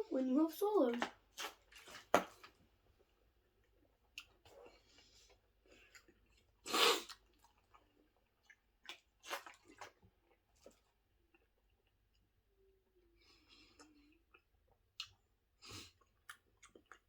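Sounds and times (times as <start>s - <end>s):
person chewing: 3.7s - 11.9s, 13.3s - 17.0s.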